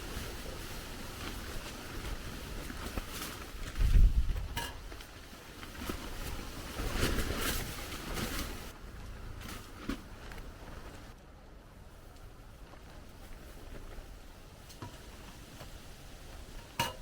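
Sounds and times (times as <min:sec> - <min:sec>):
wind rumble on microphone: 0:00.0 - 0:16.9
strong wind gusting: 0:03.6 - 0:04.7.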